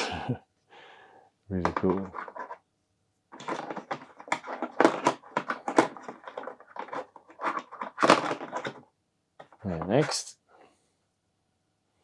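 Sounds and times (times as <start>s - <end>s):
plastic miniatures clicking and tapping: 1.6s - 2.6s.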